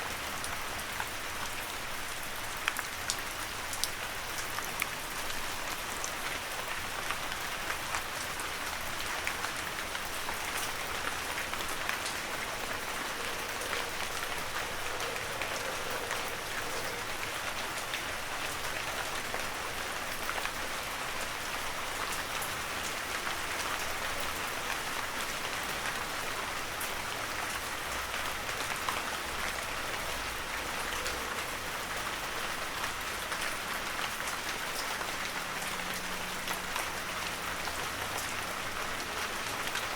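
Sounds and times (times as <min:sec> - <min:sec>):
raindrops ticking: 0:09.1 - 0:19.5.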